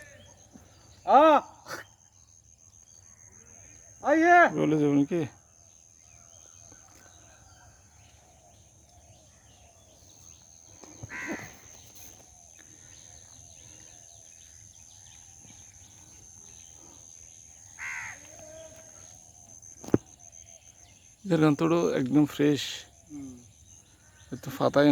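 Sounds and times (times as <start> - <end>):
bird harsh call: 10.8 - 12.2, 17.8 - 19.0.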